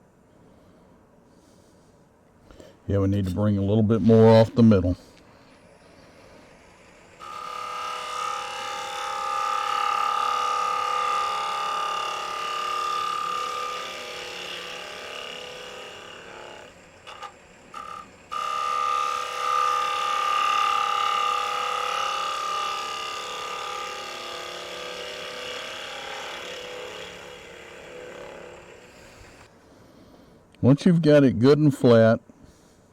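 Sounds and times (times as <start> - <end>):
lathe tool cutting wood: 6.8 - 29.5.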